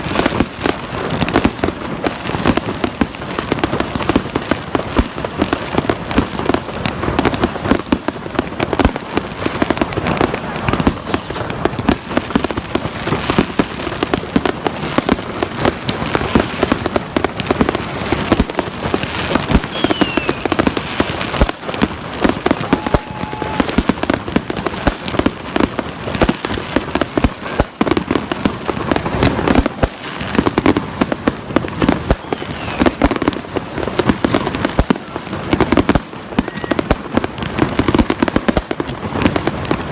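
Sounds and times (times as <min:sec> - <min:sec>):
fireworks bangs and crackles: 0:00.0 - 0:39.9
falling whistle: 0:19.7 - 0:20.5.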